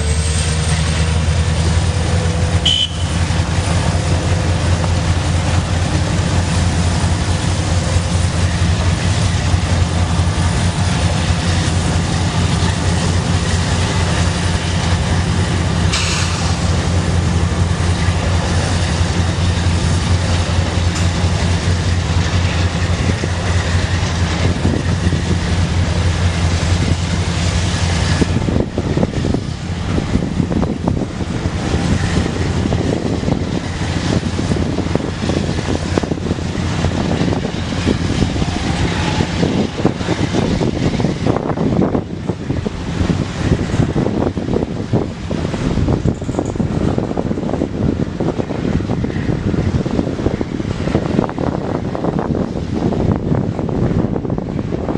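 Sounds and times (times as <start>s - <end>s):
freight train rumbling past: 0.0s - 54.9s.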